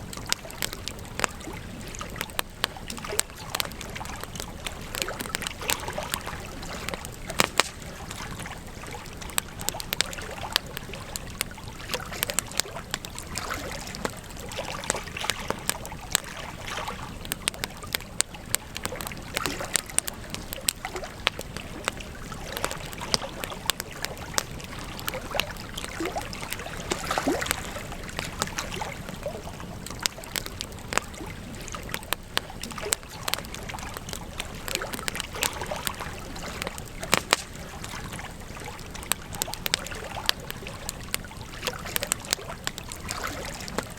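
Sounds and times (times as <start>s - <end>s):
campfire crackling and popping: 0.0s - 43.9s
low rush of flames: 0.0s - 43.9s.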